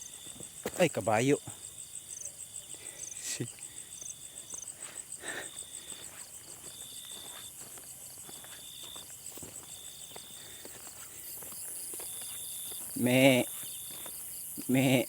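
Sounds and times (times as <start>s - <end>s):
insects trilling: 0.0s - 15.0s
soft footsteps: 5.8s - 14.4s.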